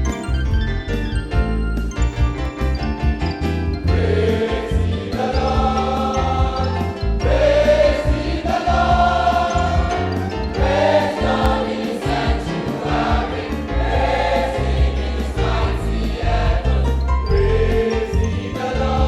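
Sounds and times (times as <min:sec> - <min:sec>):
live band accompaniment: 0:00.0 - 0:04.6, 0:05.2 - 0:18.7
choir singing gospel song: 0:03.8 - 0:19.0.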